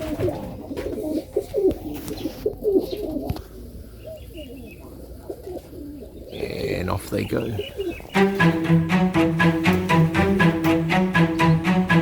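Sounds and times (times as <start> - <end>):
pigeons cooing: 0.0 - 8.2.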